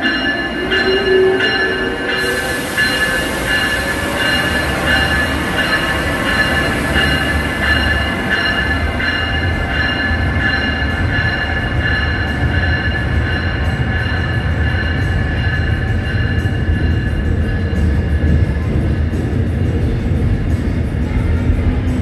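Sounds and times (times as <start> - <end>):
electric train rumbling past: 0.0 - 22.0.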